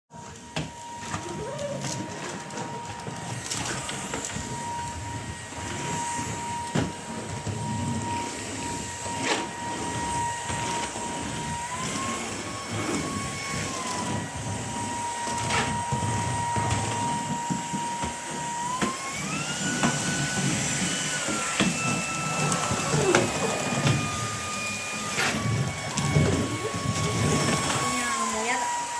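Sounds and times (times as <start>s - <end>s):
vacuum cleaner whining: 0.1s - 28.9s.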